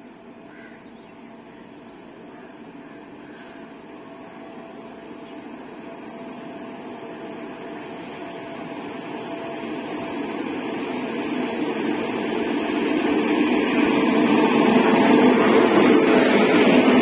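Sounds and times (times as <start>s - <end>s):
train rumble and hum: 0.0s - 17.0s.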